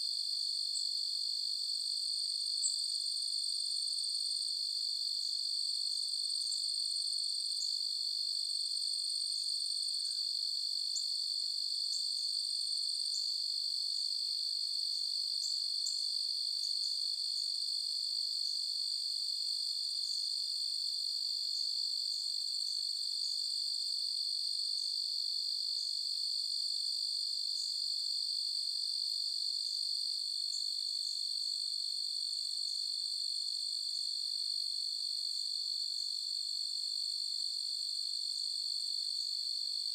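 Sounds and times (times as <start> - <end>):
short cricket chirps: 15.4 - 17.6.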